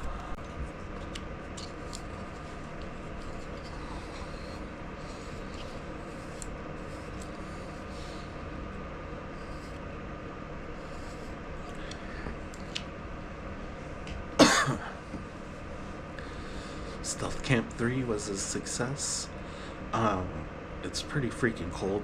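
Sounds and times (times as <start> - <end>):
steady low hum: 0.0 - 22.0
man coughing: 14.4 - 15.0.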